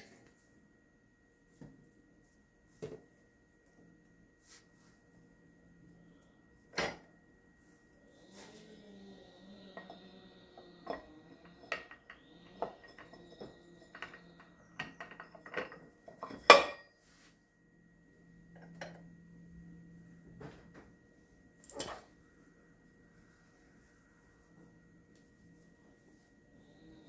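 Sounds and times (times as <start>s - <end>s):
metal tools clanking: 10.6s - 16.9s.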